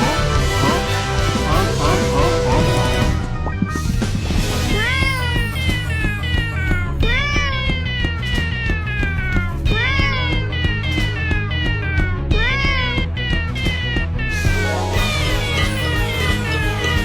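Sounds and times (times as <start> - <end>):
music with pulsing beat: 0.0 - 17.0
cat meowing: 4.8 - 13.8.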